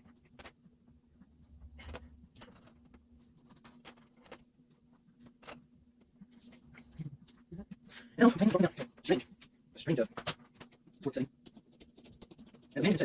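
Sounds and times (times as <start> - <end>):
faint steady hum: 0.0 - 13.0
metal parts and tools clinking: 1.5 - 4.6, 5.2 - 5.7.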